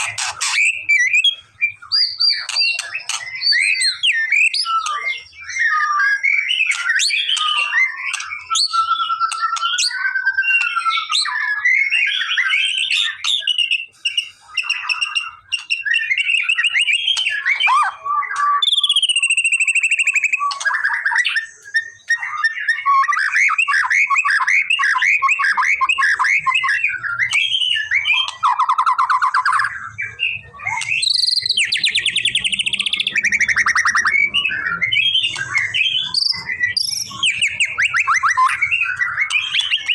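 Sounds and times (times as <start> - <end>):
songbird whistling and trilling: 0.0 - 39.9.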